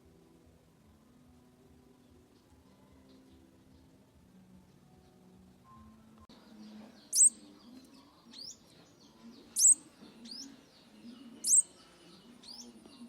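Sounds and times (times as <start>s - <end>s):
sunbird high sharp calls: 7.1s - 7.4s, 9.6s - 10.5s, 11.4s - 11.7s.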